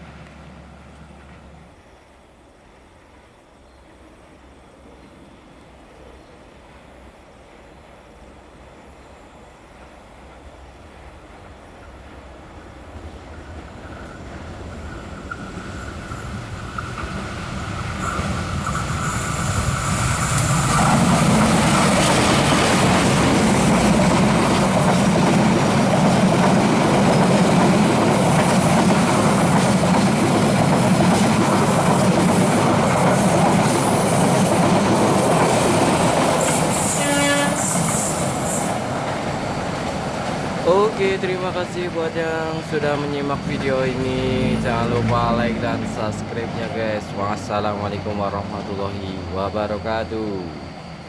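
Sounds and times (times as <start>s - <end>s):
train passing on rails: 0.0s - 51.0s.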